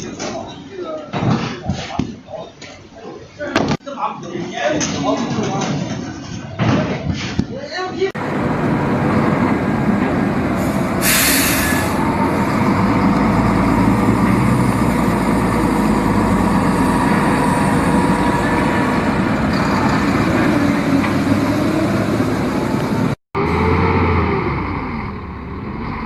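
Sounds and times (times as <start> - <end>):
truck engine running under load: 8.2 - 26.0
short loud hiss: 10.6 - 12.0.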